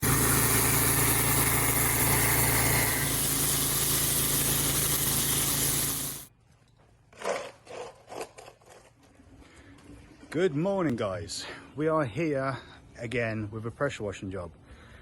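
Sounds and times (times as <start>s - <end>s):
pressure washer engine humming: 0.0s - 6.3s
water spray hissing: 0.0s - 6.3s.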